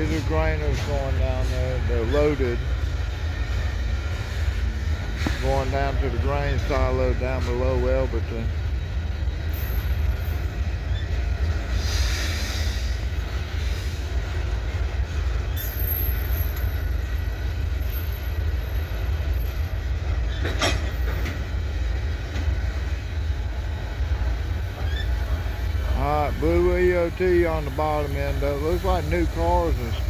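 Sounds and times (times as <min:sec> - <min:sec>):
high wheel squeals: 0:00.0 - 0:02.7, 0:05.1 - 0:14.0, 0:15.2 - 0:21.3, 0:24.7 - 0:30.0
train wheels rumbling on rails: 0:00.0 - 0:30.0.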